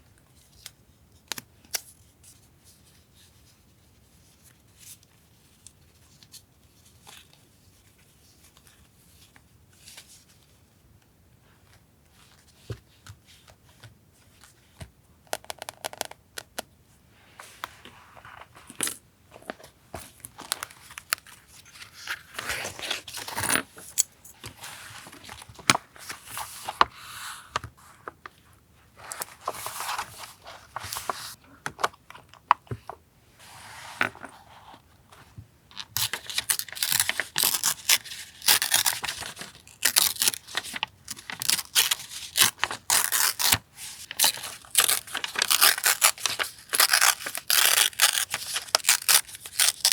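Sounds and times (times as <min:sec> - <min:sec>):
paper rustling and tearing: 0:36.0 - 0:49.9.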